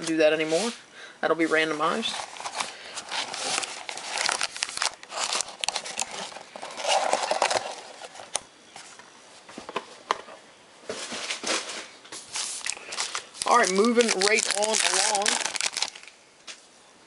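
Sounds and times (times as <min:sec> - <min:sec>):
wrapper crinkling and tearing: 0:02.0 - 0:08.4, 0:12.3 - 0:16.2
cards rustling and clicking: 0:02.1 - 0:08.4, 0:12.3 - 0:16.1.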